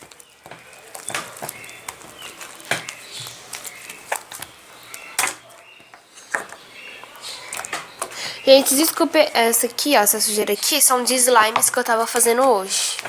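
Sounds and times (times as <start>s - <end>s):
slime clicking and popping: 0.0s - 5.4s.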